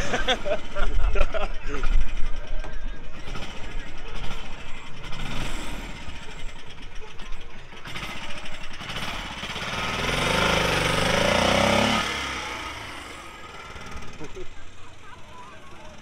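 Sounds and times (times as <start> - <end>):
car engine revving: 3.2 - 14.7.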